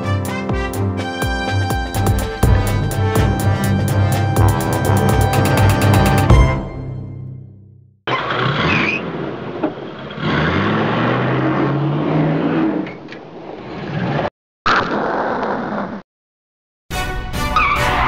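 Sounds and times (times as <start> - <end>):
music: 0.0 - 8.0, 16.9 - 18.0
car engine accelerating: 8.1 - 13.0.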